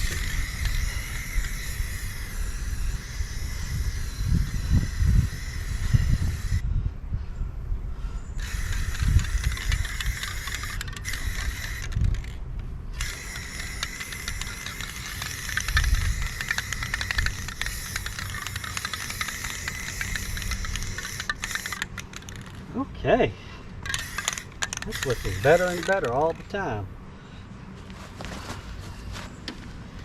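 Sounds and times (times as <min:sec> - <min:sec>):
spray can hissing: 0:13.1 - 0:21.8, 0:24.0 - 0:26.0.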